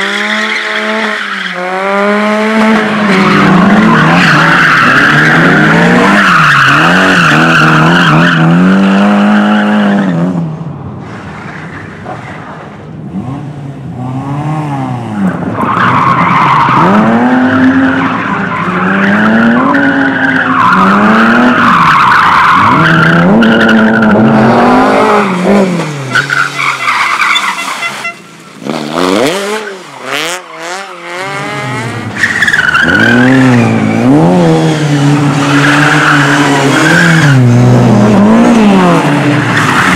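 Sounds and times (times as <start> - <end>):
race car engine revving: 0.0 - 10.4, 28.6 - 39.9.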